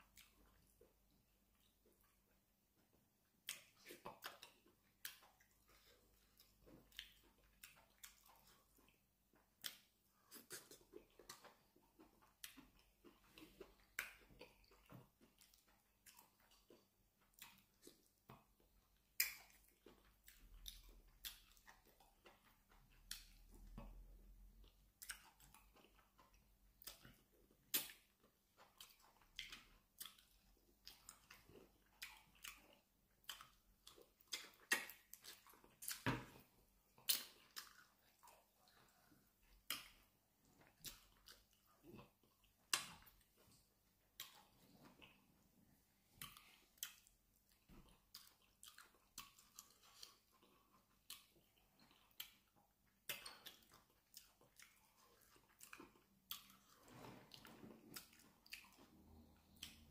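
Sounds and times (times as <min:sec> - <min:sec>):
soft wet chewing with smacks: 0:00.0 - 0:59.9.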